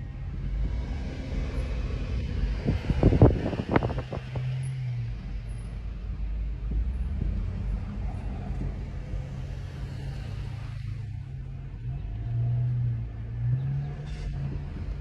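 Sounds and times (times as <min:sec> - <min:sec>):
car engine hum: 0:00.0 - 0:15.0
road rumble: 0:00.0 - 0:15.0.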